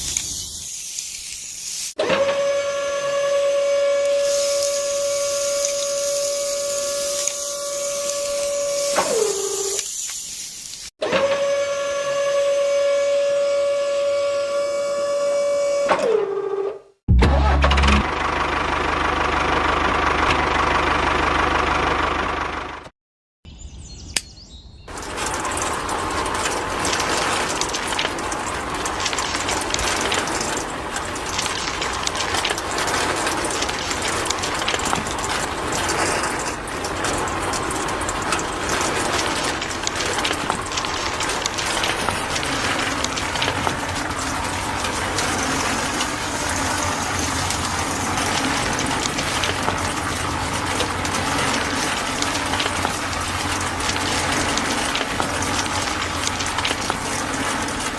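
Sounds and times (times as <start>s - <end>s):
small gears clicking rattle: 0.0s - 2.0s, 4.1s - 10.9s, 24.9s - 57.9s.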